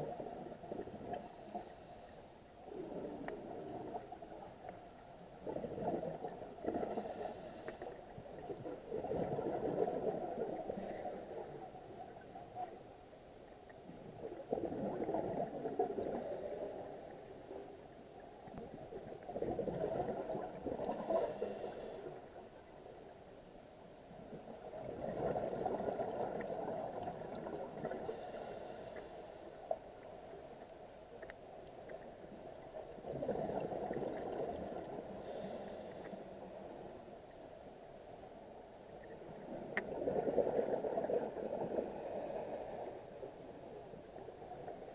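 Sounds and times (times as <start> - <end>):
regulator inhale hiss: 1.1 - 2.4, 6.8 - 8.1, 10.8 - 11.8, 16.1 - 17.2, 20.8 - 22.4, 28.0 - 29.8, 35.1 - 36.5, 41.9 - 43.2
exhaled bubbles rumbling: 2.7 - 4.5, 5.3 - 7.2, 8.3 - 10.9, 13.9 - 16.5, 18.4 - 21.4, 24.2 - 28.2, 32.2 - 35.4, 39.0 - 42.7.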